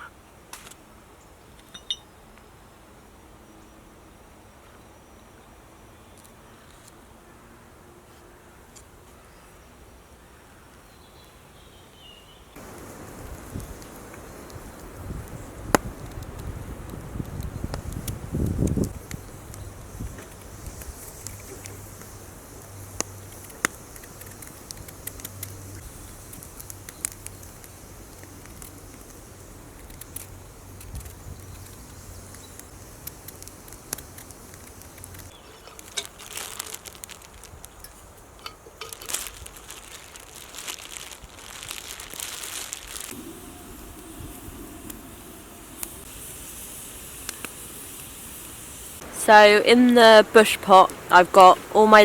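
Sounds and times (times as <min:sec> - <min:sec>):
campfire crackling and popping: 0:12.6 - 0:52.0
rustling and handling noise: 0:33.7 - 0:43.2.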